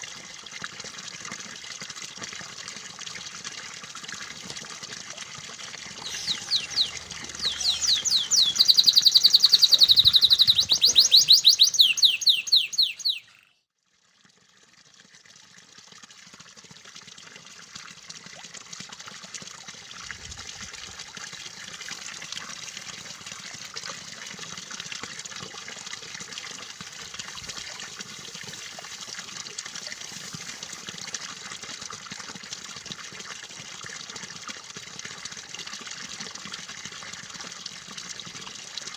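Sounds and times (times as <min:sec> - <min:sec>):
running water: 0:00.0 - 0:13.4, 0:14.2 - 0:38.9
canary singing trills: 0:06.0 - 0:13.6.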